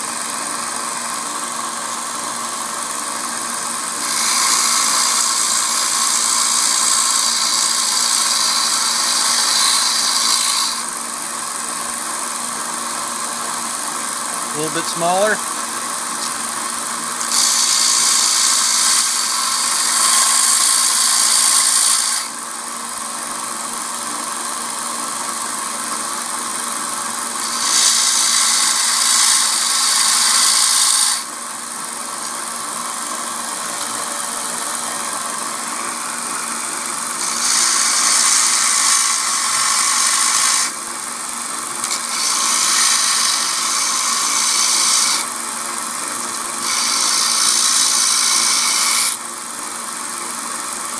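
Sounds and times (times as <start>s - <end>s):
belt sander running: 0.0s - 50.9s
knife blade grinding on belt: 46.6s - 49.2s.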